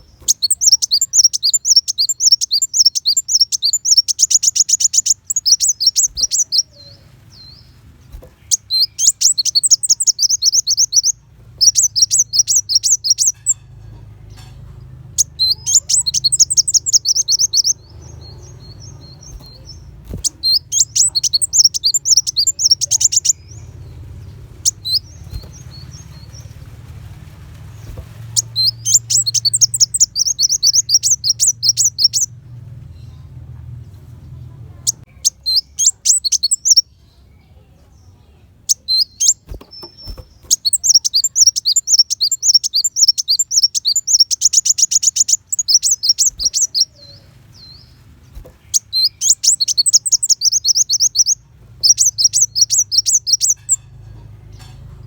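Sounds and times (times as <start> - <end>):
sunbird chirping rapidly: 0.0 - 13.8, 15.0 - 33.3, 34.7 - 54.7.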